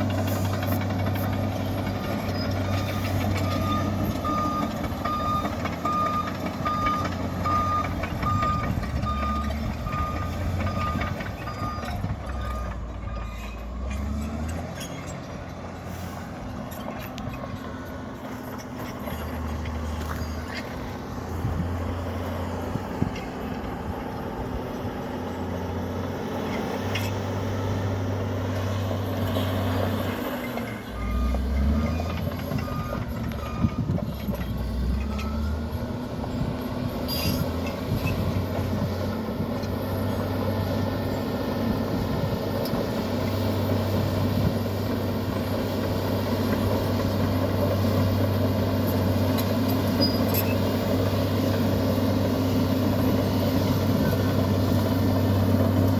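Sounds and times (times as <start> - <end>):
bulldozer diesel engine running: 0.0 - 55.9.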